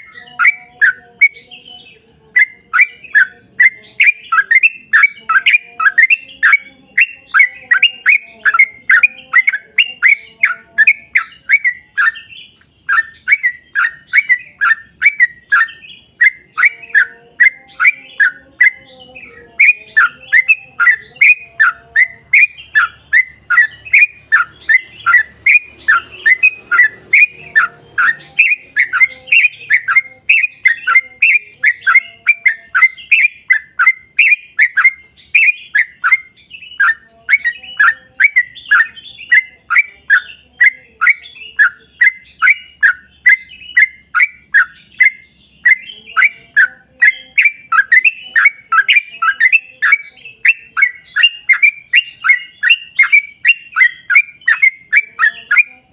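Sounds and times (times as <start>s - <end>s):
bird singing bubbly notes: 0.0s - 18.8s.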